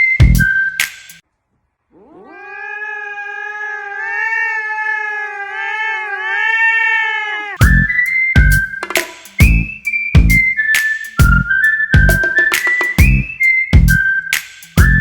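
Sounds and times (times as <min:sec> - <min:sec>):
cat yowling: 0:01.9 - 0:07.6.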